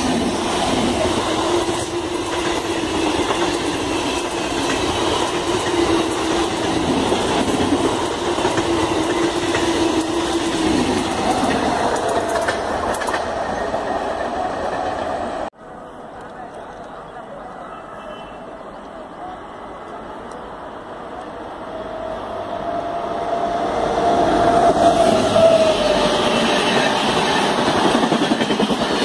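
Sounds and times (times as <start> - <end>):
train wheels rushing on rail: 0.0 - 17.9, 18.7 - 29.0
steady train hum: 0.0 - 29.0
clicking over rail joints: 4.5 - 13.4.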